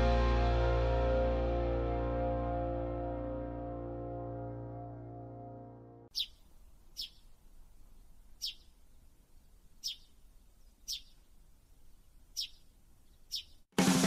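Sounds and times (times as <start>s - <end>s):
background music: 0.0s - 6.1s, 13.8s - 14.0s
bird chirping: 6.1s - 13.7s.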